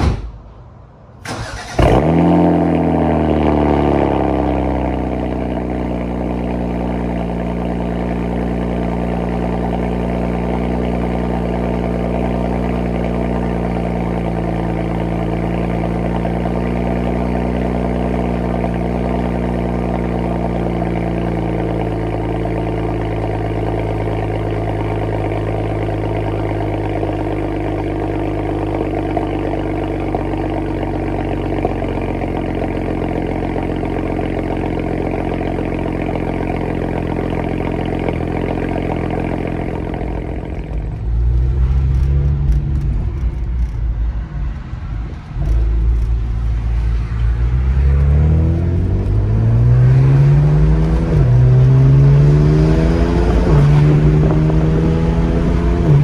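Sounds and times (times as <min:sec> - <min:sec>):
car engine revving then idling: 0:01.2 - 0:56.0.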